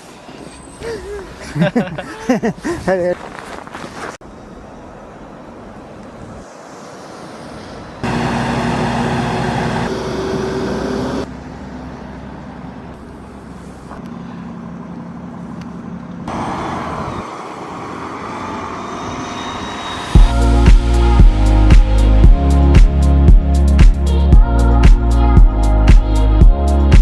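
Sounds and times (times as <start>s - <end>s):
road traffic hum: 0.0s - 22.2s.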